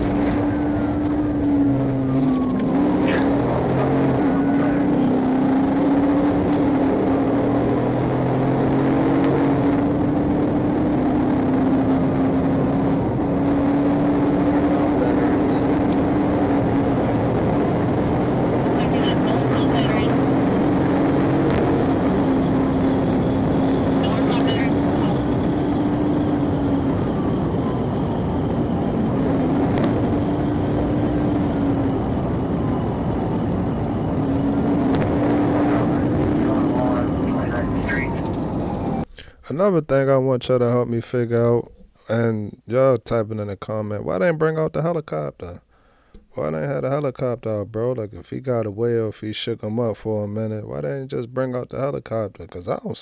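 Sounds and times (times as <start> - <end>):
faint siren wailing: 0.0 - 7.6, 12.7 - 39.1
road noise inside car: 0.0 - 39.6
car engine drone: 0.0 - 53.0.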